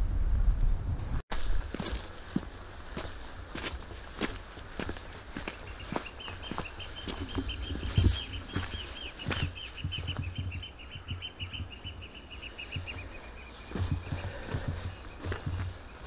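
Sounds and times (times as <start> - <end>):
footsteps: 1.3 - 16.0
bird calling repeated notes: 5.4 - 16.0.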